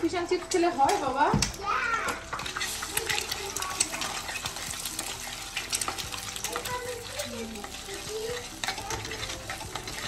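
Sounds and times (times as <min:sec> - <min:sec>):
eggs sizzling in a pan: 0:00.0 - 0:10.0
utensil scraping a pan: 0:02.4 - 0:10.0.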